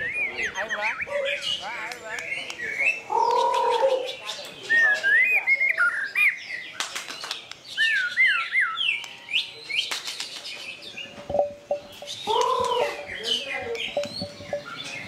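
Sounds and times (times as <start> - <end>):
bird whistling song: 0.0 - 1.6, 2.2 - 6.8, 7.7 - 9.9, 10.5 - 15.0
bird clicking notes: 11.3 - 15.0.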